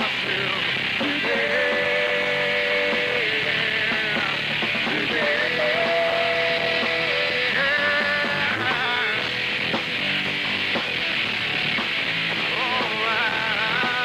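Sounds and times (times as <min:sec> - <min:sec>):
bending lead guitar notes: 0:00.0 - 0:14.0
rock band playing: 0:00.0 - 0:14.0.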